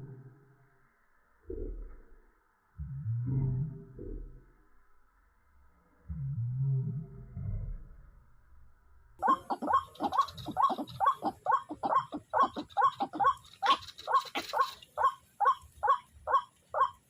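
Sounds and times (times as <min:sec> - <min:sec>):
waterhen calling: 0:09.2 - 0:17.0.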